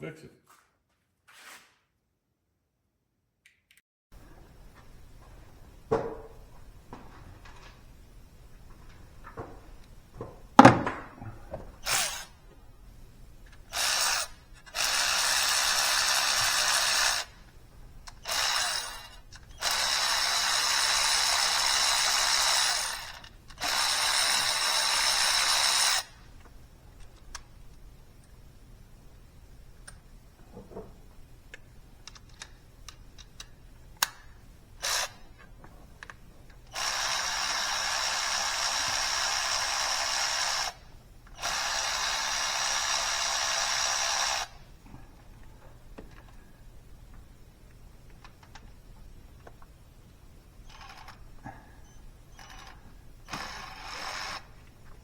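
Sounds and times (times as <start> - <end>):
handheld power tool running: 11.8 - 12.4, 13.5 - 17.4, 18.1 - 26.2, 34.8 - 35.2, 36.7 - 44.6, 52.3 - 54.7.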